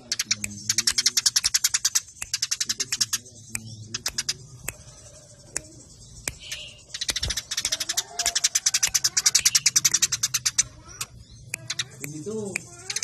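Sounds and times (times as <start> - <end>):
sparrows chirping: 0.0 - 13.0.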